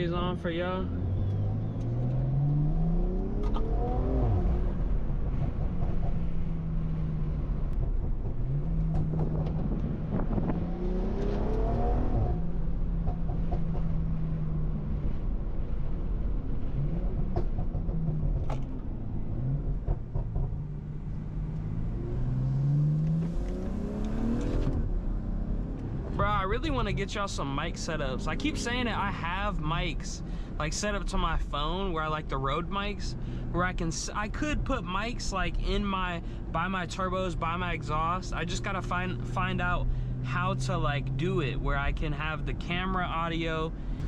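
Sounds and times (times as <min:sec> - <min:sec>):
car engine accelerating hard: 0:00.0 - 0:30.0.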